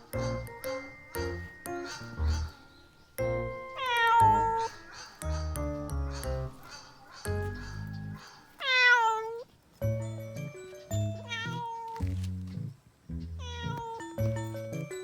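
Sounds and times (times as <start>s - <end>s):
light background music: 0.0s - 8.9s, 9.7s - 15.0s
cat meowing: 3.8s - 4.8s, 8.6s - 9.5s, 11.2s - 12.0s, 13.4s - 14.1s.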